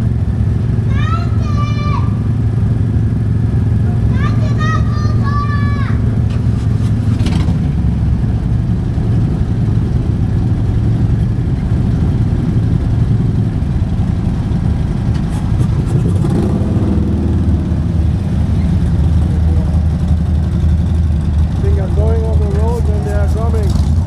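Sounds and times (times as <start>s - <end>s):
road and wind noise: 0.0s - 24.0s
vehicle engine rumble: 0.0s - 24.0s.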